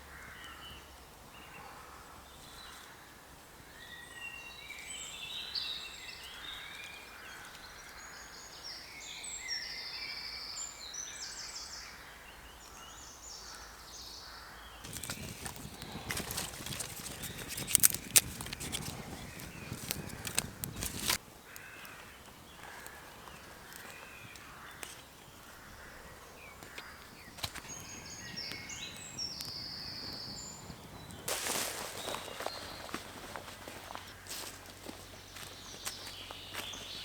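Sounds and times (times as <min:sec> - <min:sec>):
songbirds chirping: 0:00.0 - 0:37.0
close scraping and rustling: 0:14.8 - 0:21.2, 0:26.6 - 0:35.1.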